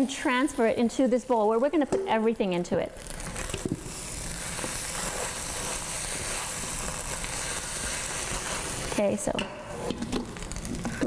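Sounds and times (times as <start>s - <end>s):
egg sizzling in grease: 0.0s - 11.0s.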